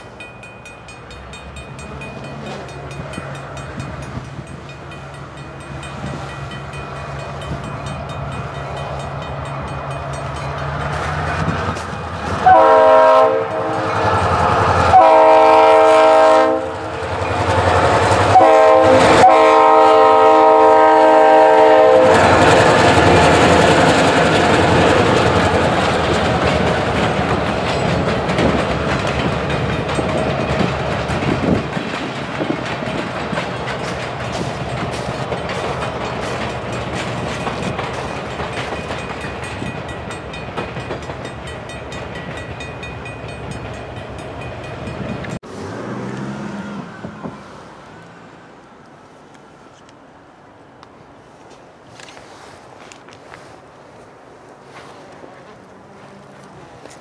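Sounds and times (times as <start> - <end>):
train wheels clacking on rail joints: 0.0 - 46.3
locomotive air horn: 12.4 - 16.9, 18.2 - 22.5.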